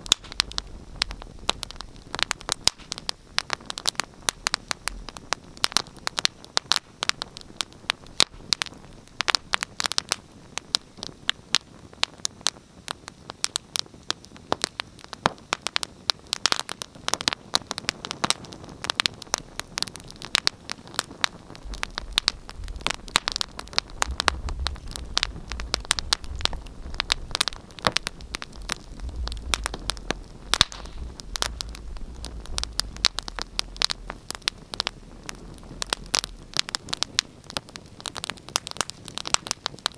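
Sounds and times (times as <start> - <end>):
wood fire crackling: 0.0 - 39.9
low rumble: 21.4 - 37.1.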